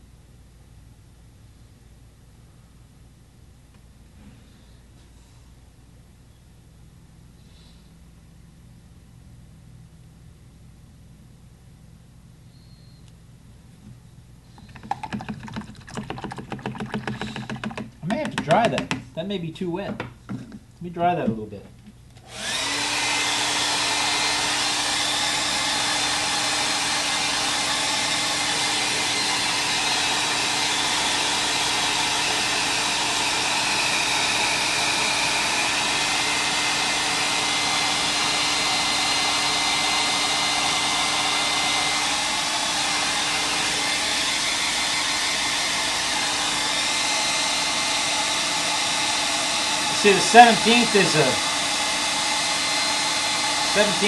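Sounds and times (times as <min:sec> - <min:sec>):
electric dryer blowing air: 0:14.6 - 0:19.1, 0:22.2 - 0:54.0.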